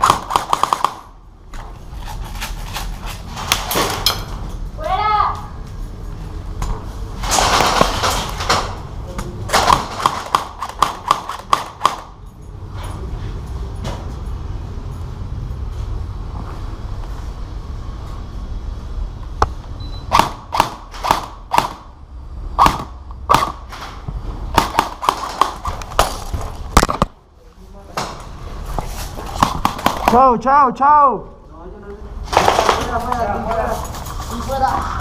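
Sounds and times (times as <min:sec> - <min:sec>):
airsoft guns popping: 0:00.0 - 0:01.1, 0:09.5 - 0:12.1, 0:20.1 - 0:21.8, 0:22.6 - 0:23.9, 0:24.5 - 0:27.2, 0:29.4 - 0:30.3
steady low rumble: 0:11.8 - 0:29.2.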